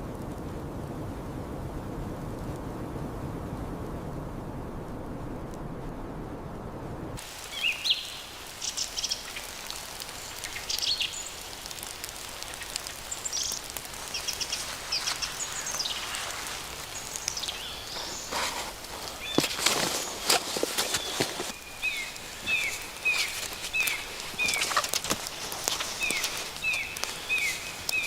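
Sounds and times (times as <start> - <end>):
low wind-like rumble: 0.0 - 28.0
steady hiss: 0.0 - 28.0
small birds chirping: 7.3 - 28.0
faint irregular ticks: 8.6 - 28.0.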